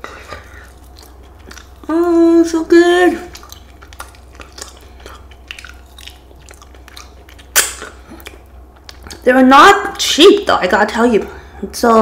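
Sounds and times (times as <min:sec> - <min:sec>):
person chewing wet mouth clicks: 0:00.3 - 0:01.9, 0:03.2 - 0:09.2.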